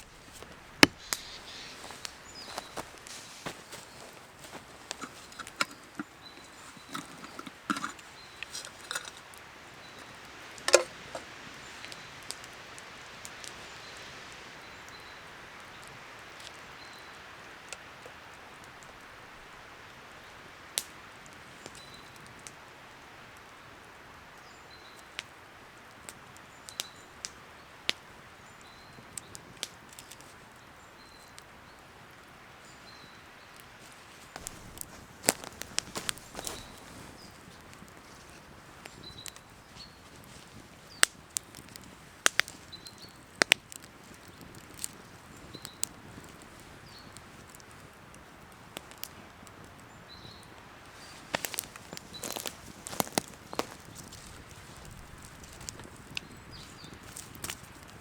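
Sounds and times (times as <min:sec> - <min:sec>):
handling knocks and rustles: 0:00.0 - 0:09.4, 0:33.8 - 0:39.4
wood fire crackling: 0:00.0 - 0:58.0.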